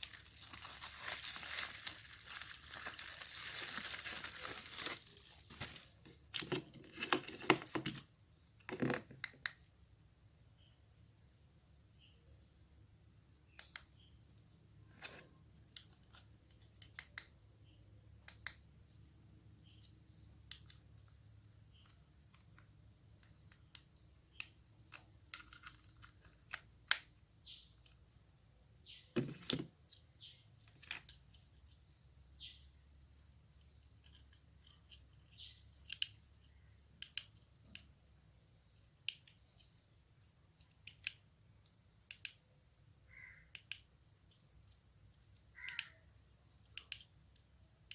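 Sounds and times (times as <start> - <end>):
hands handling a package: 0.0 - 8.0.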